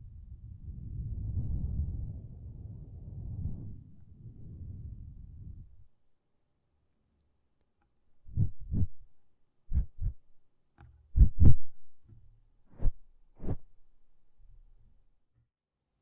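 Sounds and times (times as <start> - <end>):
muffled thumps and rubs on microphone: 8.3 - 9.1, 9.7 - 10.3, 11.1 - 14.8.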